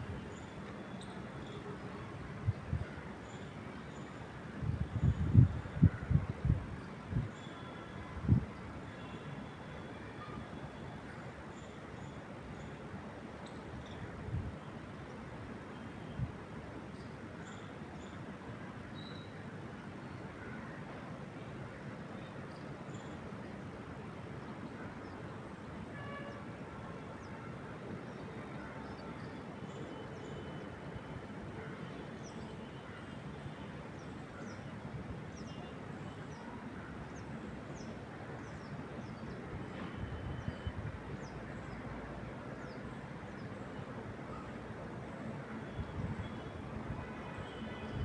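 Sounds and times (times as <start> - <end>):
wind rushing through trees: 4.3 - 7.4.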